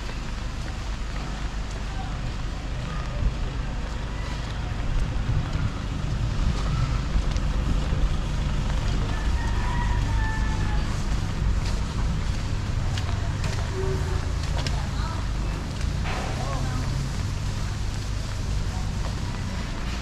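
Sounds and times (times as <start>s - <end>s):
faint distant voices: 0.0s - 20.0s
traffic rumble: 0.0s - 20.0s
wind on microphone: 4.8s - 9.1s.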